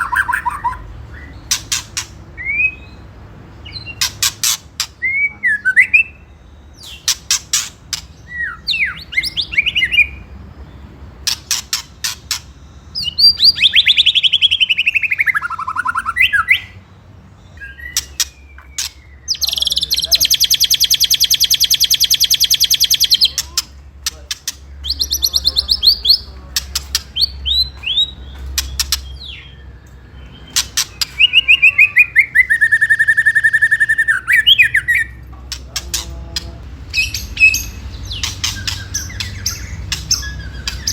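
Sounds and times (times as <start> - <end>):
bird whistled song: 0.0 - 23.7, 24.5 - 35.2, 36.9 - 40.9
bird sharp clicks: 1.5 - 2.2, 26.5 - 29.2, 35.5 - 40.9.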